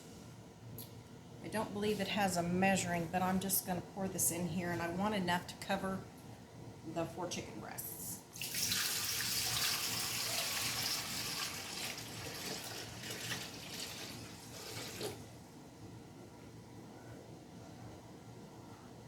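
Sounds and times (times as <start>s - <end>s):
water pouring into a pot: 8.4s - 15.2s.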